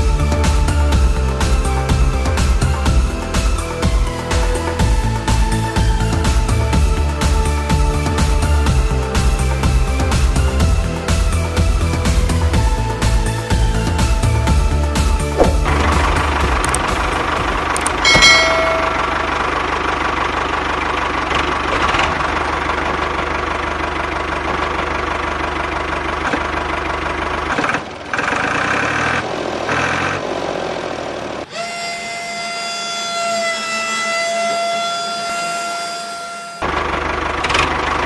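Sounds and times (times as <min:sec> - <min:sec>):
high whine: 0:15.4 - 0:20.3.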